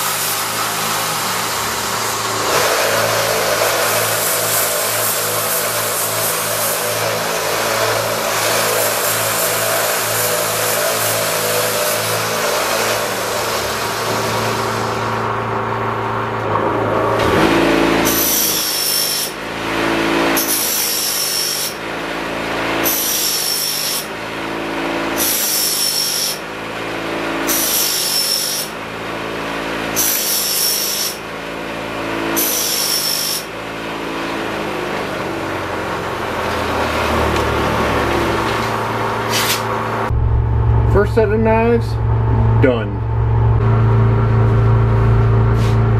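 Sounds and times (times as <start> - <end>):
sharpening machine motor hum: 0.0 - 15.3.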